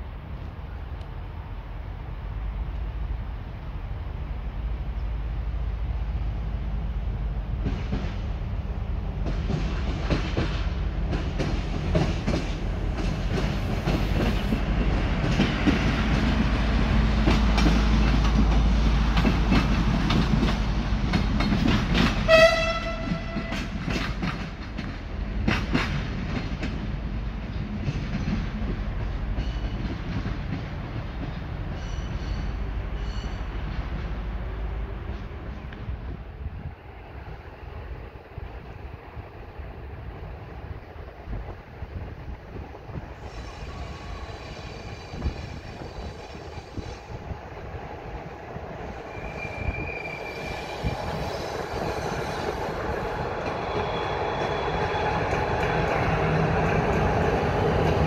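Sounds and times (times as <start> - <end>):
train rumble: 0.0 - 58.0
train wheels clicking over rail joints: 7.4 - 36.1, 48.6 - 58.0
train horn blast: 22.2 - 23.9.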